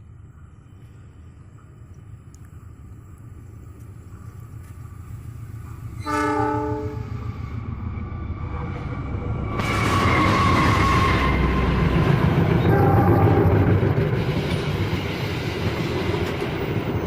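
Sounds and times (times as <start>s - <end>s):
train rumbling: 0.0s - 17.0s
train horn blast: 6.0s - 7.2s, 12.6s - 13.7s.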